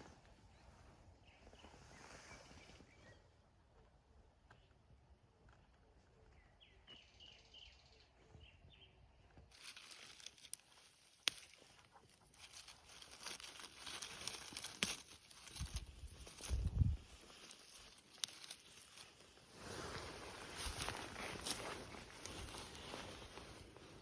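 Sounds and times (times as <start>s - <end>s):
faint bird chirps: 0.5s - 3.5s, 6.1s - 9.1s
rustling and snapping undergrowth: 9.5s - 24.0s.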